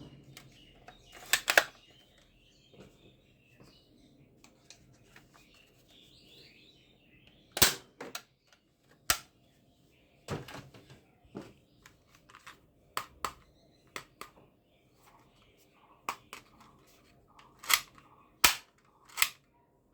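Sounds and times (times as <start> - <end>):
toy guns clicking: 17.5 - 19.4.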